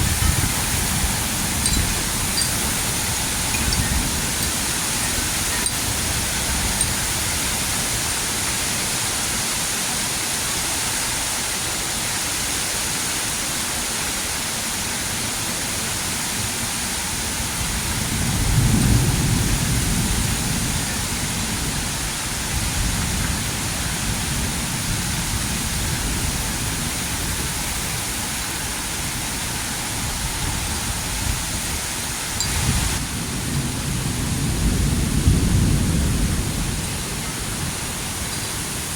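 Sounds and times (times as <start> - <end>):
rain hissing: 0.0 - 38.9
thunder rumble: 32.9 - 38.2.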